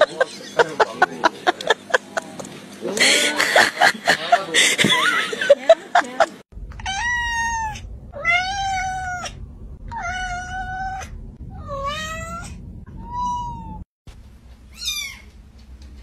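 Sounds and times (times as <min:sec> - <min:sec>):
cat meowing: 0:06.8 - 0:13.8, 0:14.7 - 0:15.3.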